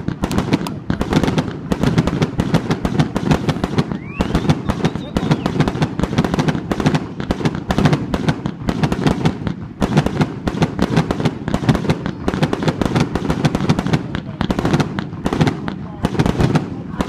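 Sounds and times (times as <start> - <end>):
fireworks sharp bangs: 0.0 - 17.0
low rumble of fireworks: 0.0 - 17.0.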